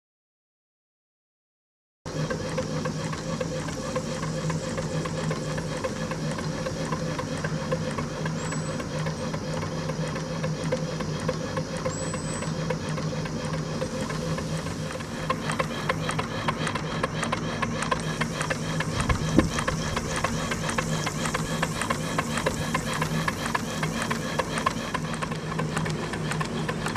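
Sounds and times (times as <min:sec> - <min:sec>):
model steam engine running: 0:02.1 - 0:26.9.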